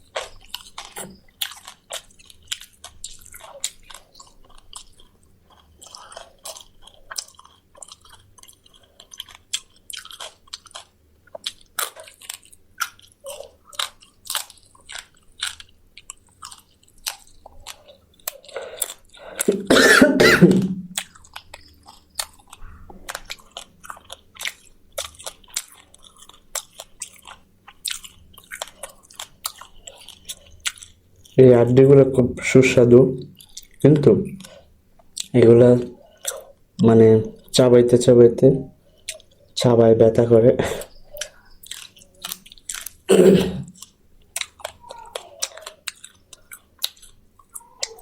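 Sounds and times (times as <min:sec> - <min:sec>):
chewing and crunching bones: 0:00.0 - 0:19.9, 0:20.6 - 0:48.0
person coughing: 0:19.4 - 0:20.9, 0:43.1 - 0:43.7.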